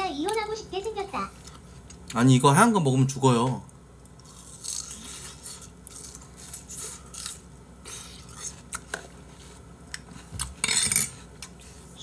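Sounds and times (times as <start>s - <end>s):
person chewing watermelon: 4.2s - 11.9s.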